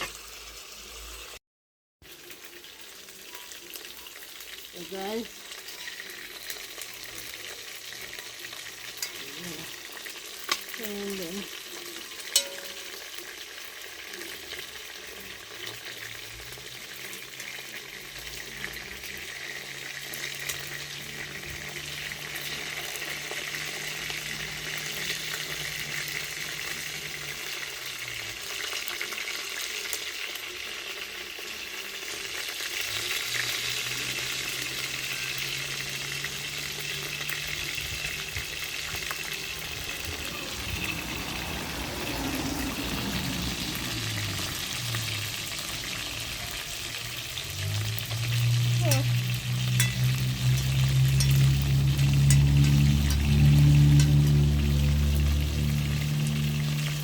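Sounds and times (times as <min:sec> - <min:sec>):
chicken frying in hot oil: 0:00.0 - 0:01.4, 0:02.0 - 0:57.0
low hum: 0:47.7 - 0:57.0.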